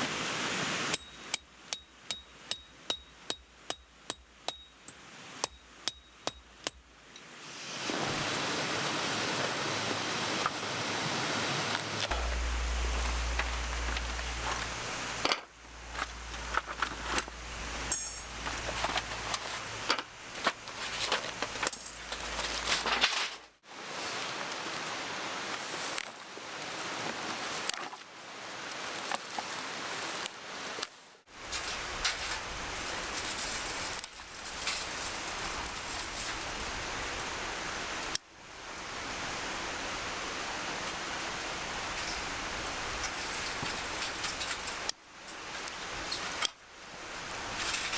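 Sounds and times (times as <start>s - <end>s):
mountain stream rushing: 0.0s - 1.0s, 7.2s - 22.9s, 23.6s - 30.8s
camp gear rustling and clinking: 11.7s - 24.7s.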